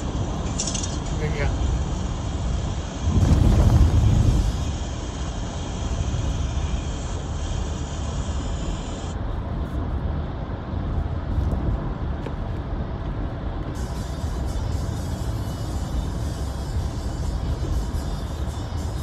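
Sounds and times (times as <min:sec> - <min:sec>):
car road rumble: 0:00.0 - 0:19.0
tyres hissing on wet road: 0:01.2 - 0:09.2, 0:13.8 - 0:19.0.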